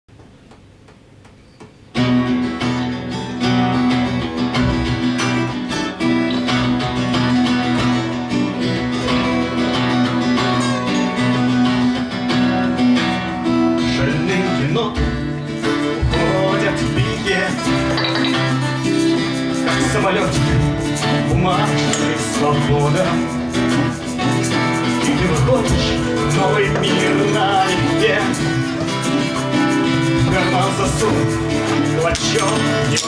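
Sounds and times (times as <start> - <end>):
strummed acoustic guitar: 1.9 - 33.0
sustained bass notes: 13.2 - 33.0.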